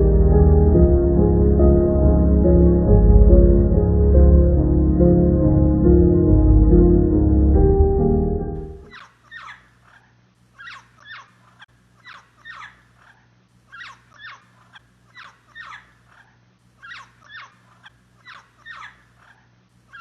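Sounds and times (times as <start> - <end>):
parrot calling: 8.9 - 20.0.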